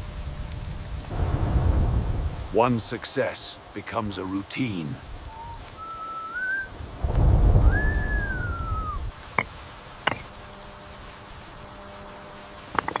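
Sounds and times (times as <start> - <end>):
low rumble of thunder: 0.0 - 2.6, 6.7 - 9.1
rain hiss: 0.0 - 13.0
whistled notes: 5.3 - 6.8, 7.6 - 9.1.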